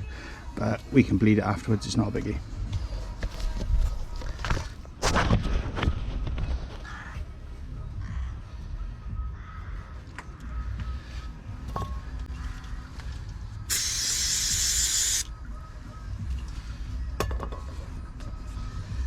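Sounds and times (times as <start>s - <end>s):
aerosol can spraying hiss: 13.7s - 15.3s.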